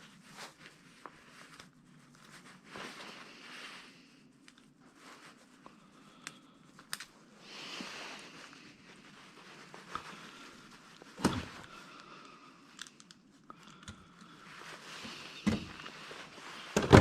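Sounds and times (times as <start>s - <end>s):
rustling of scrap parts: 15.0s - 17.0s.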